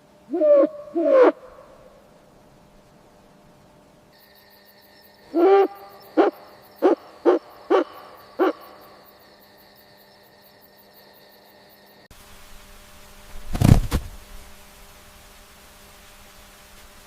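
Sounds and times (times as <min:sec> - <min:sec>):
owl hooting: 0:00.3 - 0:02.1, 0:05.2 - 0:09.0.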